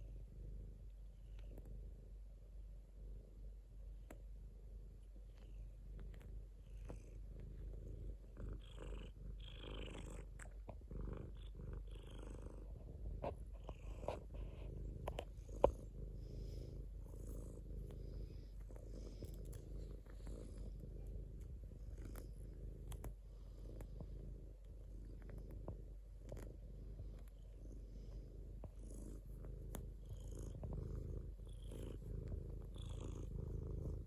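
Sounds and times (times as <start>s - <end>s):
cat purring: 0.0s - 34.0s
soft clicks and rustles: 5.0s - 9.0s, 9.8s - 34.0s.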